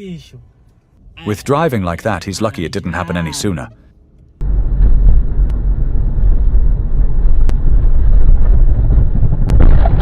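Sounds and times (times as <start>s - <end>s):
heavy truck engine rumble: 3.9s - 10.0s
wind noise on microphone: 4.4s - 10.0s.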